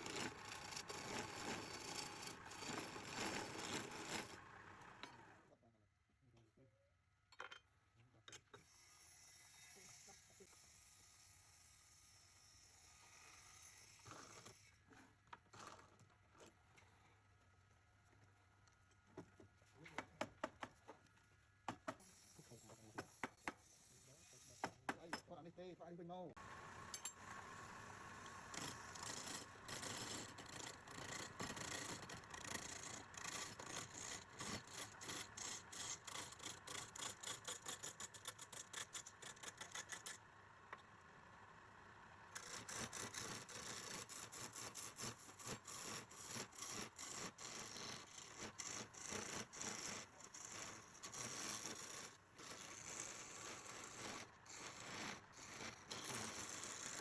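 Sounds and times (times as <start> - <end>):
hand tool scraping strokes: 0.0 - 4.4, 8.6 - 16.5, 21.8 - 25.2, 28.4 - 40.2, 42.3 - 57.0.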